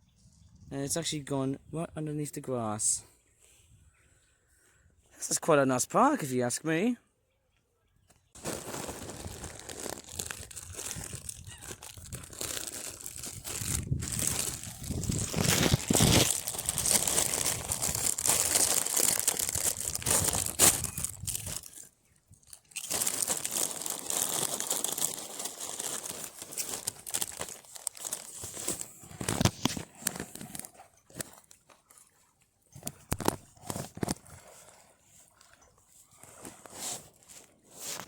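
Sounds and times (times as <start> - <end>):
crisp packet crinkling: 8.4 - 30.7.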